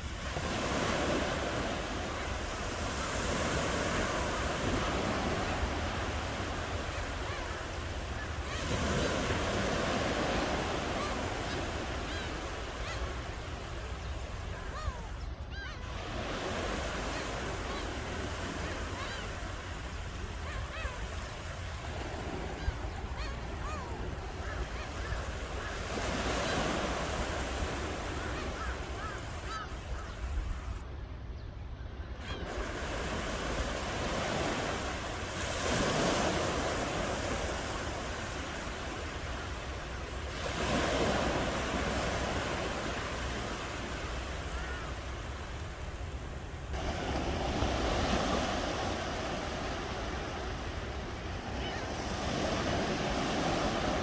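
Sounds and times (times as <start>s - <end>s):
ocean waves breaking: 0.0s - 30.9s, 32.2s - 54.0s.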